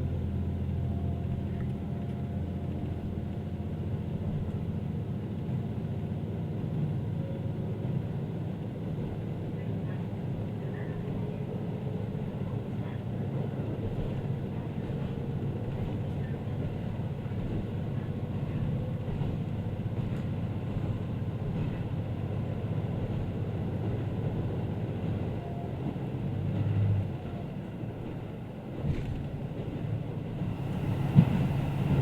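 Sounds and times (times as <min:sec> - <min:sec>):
diesel railcar rumbling: 0:00.0 - 0:32.0
railcar bump: 0:28.1 - 0:32.0.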